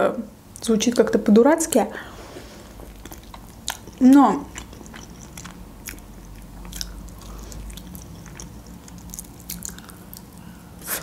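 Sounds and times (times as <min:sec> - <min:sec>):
chewing chicken wing: 0:02.7 - 0:11.0.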